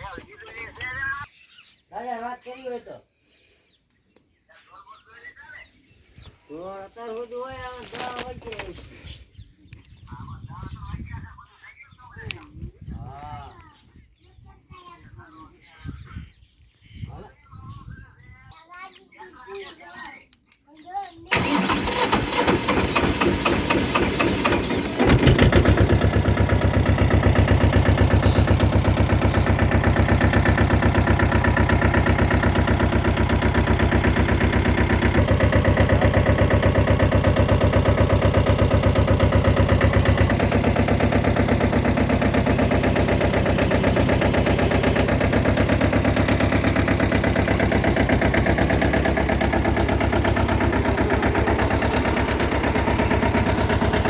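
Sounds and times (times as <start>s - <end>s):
tractor engine chugging: 21.3s - 54.0s.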